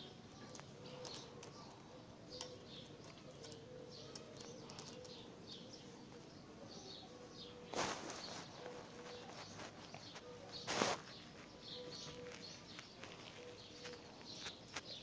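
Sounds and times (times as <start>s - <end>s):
small birds chirping: 0.0s - 15.0s
loud rustle: 7.7s - 11.5s.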